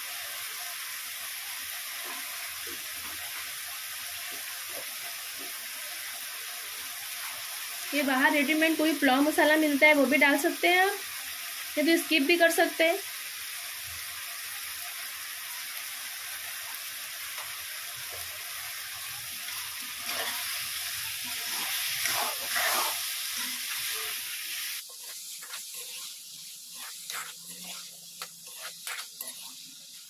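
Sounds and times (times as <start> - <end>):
vegetables sizzling in hot oil: 0.0 - 30.0
metal spatula scraping a pan: 19.5 - 30.0.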